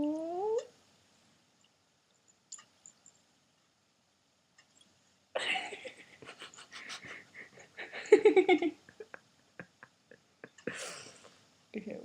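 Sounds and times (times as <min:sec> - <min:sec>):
wheezy breathy laughter: 0:05.4 - 0:11.3
sudden gasp of breath: 0:10.7 - 0:11.3.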